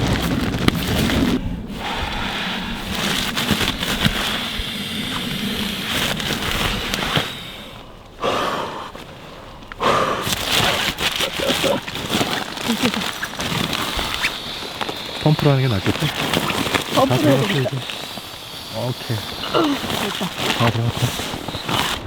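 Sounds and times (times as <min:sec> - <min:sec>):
tent fabric rustling and crackling: 0:00.0 - 0:22.0
wind buffeting microphone: 0:00.0 - 0:22.0.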